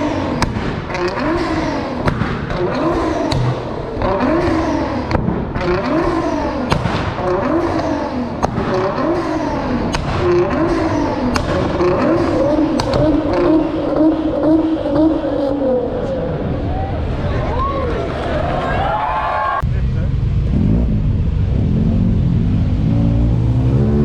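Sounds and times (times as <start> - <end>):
exhaust pops and bangs: 0.0 - 15.3
car engine revving: 0.0 - 16.7, 19.6 - 24.0.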